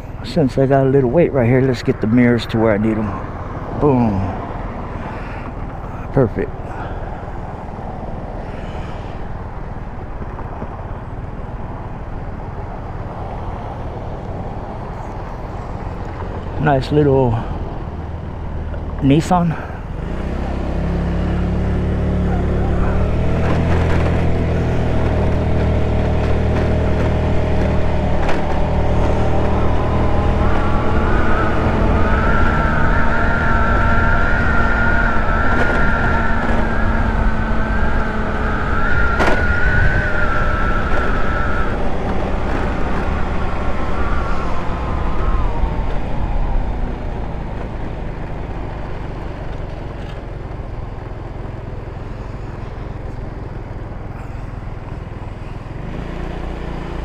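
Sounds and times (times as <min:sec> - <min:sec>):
high whine: 0:00.0 - 0:55.7
scooter engine accelerating: 0:17.4 - 0:57.0.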